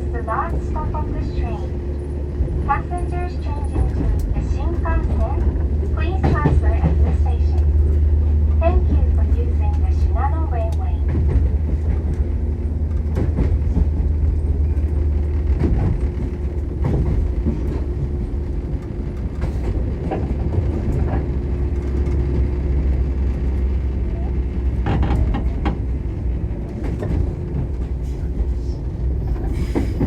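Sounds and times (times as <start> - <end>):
train rumble and hum: 0.0 - 30.0
wheels clacking over rail joints: 24.6 - 30.0.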